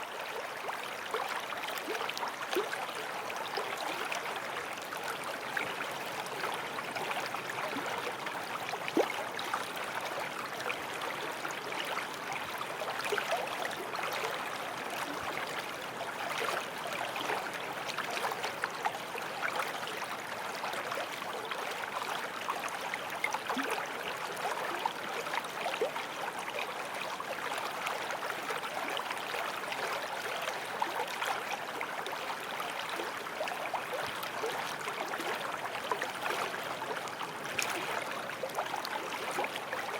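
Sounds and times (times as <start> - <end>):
stream running over stones: 0.0 - 39.9
small water splashes: 23.2 - 39.9.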